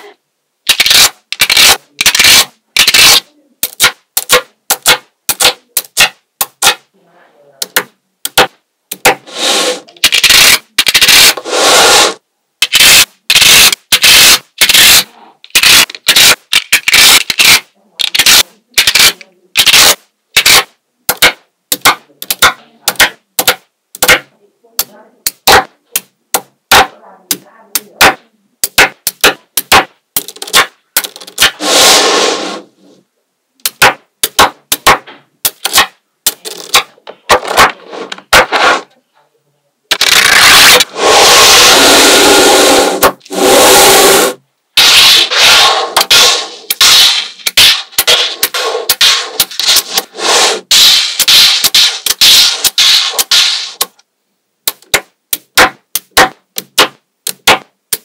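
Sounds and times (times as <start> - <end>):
magnetic balls clicking together: 0.6 - 6.8, 12.6 - 31.6, 33.6 - 37.0, 46.0 - 50.1, 50.7 - 58.0
rattling scrapes of ball strips: 0.7 - 6.8, 8.4 - 23.2, 28.7 - 32.7, 33.7 - 38.9, 39.9 - 54.0.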